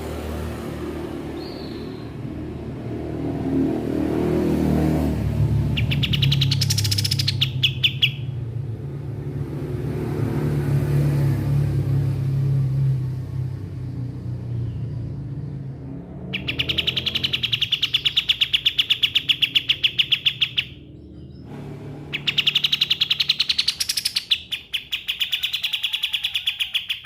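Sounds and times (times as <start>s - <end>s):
songbird chirp: 1.3s - 2.5s, 5.5s - 8.6s, 14.4s - 27.0s
fast rattling bird trill: 5.7s - 8.4s, 16.3s - 20.9s, 22.1s - 27.0s.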